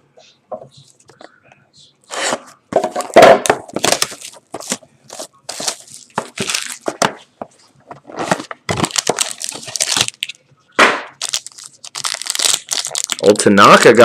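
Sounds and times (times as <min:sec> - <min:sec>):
plastic wrapping crinkling and tearing: 0:03.7 - 0:07.0, 0:08.1 - 0:10.4, 0:11.2 - 0:14.0.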